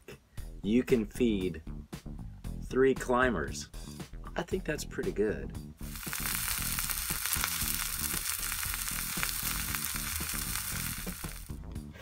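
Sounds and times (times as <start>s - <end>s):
food sizzling in oil: 5.8s - 11.6s.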